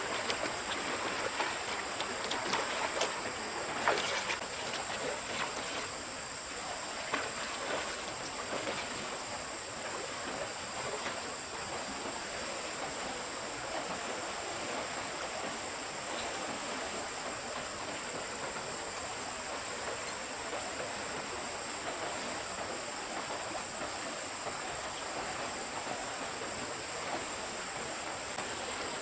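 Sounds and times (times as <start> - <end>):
stream water running: 0.0 - 29.0.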